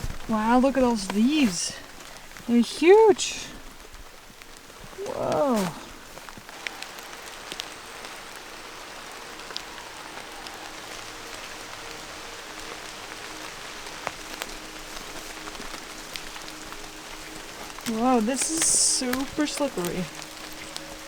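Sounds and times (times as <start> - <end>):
rain hissing in forest: 0.0 - 21.0
sharp water drips: 0.0 - 21.0.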